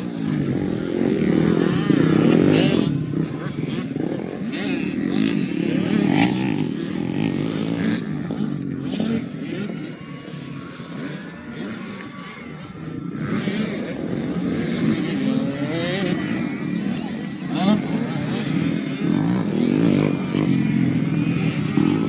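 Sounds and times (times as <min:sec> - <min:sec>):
motocross bikes revving: 0:00.0 - 0:22.0.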